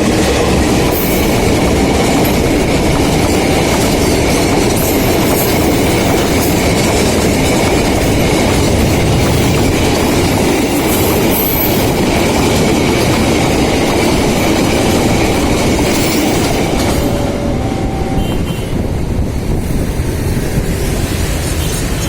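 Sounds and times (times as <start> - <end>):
train wheels clattering over rails: 0.0 - 17.5
train cars rumbling by: 0.0 - 22.0.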